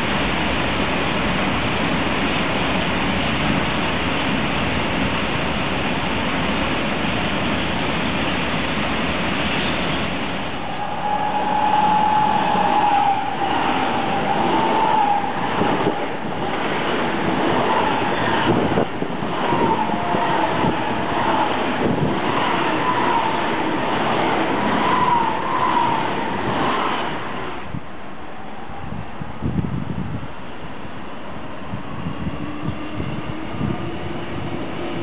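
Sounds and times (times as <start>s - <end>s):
high-speed train passing: 0.0s - 35.0s
train wagons rolling past: 0.0s - 35.0s.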